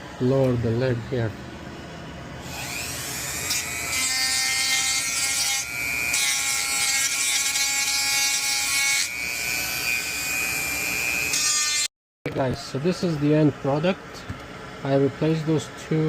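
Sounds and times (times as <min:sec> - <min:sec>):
rotary tool grinding metal: 0:02.4 - 0:11.9.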